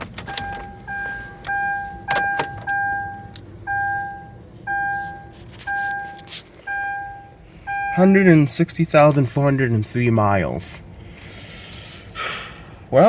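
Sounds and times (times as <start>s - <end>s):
keys jangling: 0.0s - 3.6s
car door warning chime: 0.0s - 8.3s.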